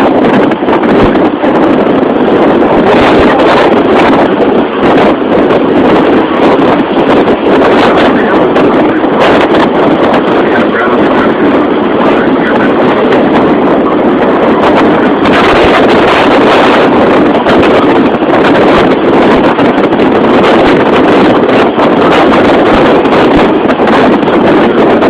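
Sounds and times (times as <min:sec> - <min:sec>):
boat running noise: 0:00.0 - 0:25.0
wind buffeting microphone: 0:00.0 - 0:25.0.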